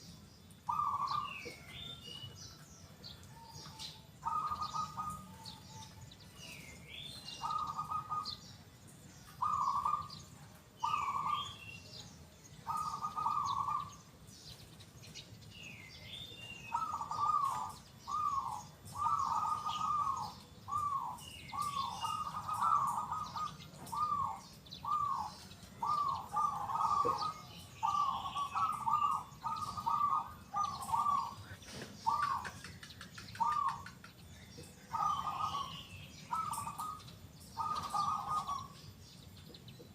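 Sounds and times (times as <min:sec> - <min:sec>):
small bird chirping: 0:00.0 - 0:39.9
dove cooing: 0:00.6 - 0:02.0, 0:03.3 - 0:08.4, 0:09.3 - 0:11.6, 0:12.6 - 0:14.1, 0:16.6 - 0:34.2, 0:34.8 - 0:38.9.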